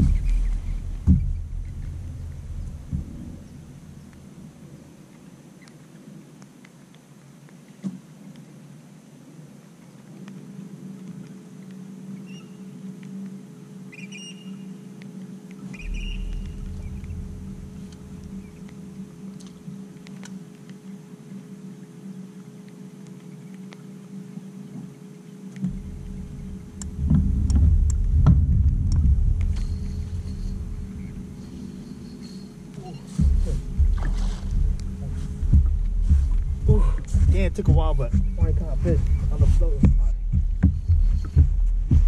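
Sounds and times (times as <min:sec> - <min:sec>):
deep rumble: 0:00.0 - 0:05.0, 0:15.7 - 0:20.0, 0:25.6 - 0:42.0
small boat motor humming: 0:11.8 - 0:39.2.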